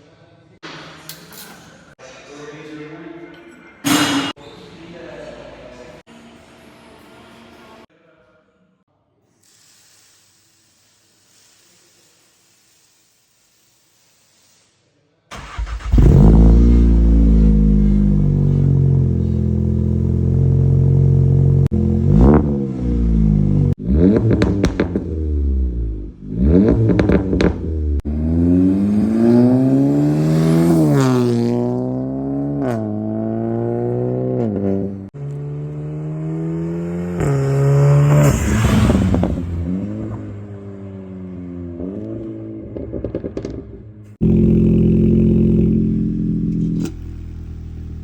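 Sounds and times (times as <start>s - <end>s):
car engine accelerating through gears: 15.3s - 43.6s
exhaust cracks and pops: 24.1s - 25.1s, 26.7s - 27.7s, 42.8s - 43.8s.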